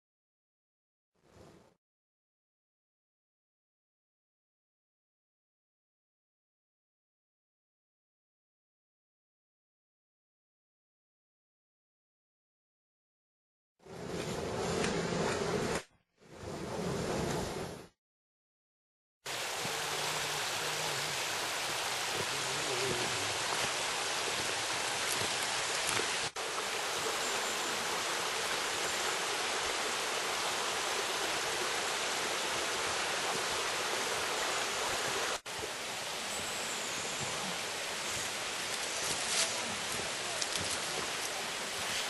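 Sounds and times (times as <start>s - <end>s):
flowing stream water: 19.3s - 42.0s.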